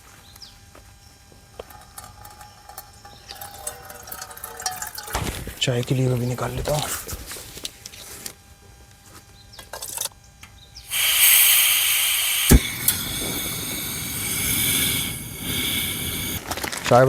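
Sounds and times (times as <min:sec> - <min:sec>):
gas camping stove hissing: 0:01.5 - 0:08.4, 0:10.8 - 0:17.0.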